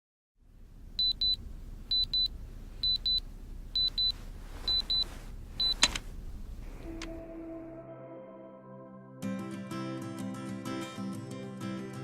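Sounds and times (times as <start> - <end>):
low steady rumble: 0.4 - 7.6.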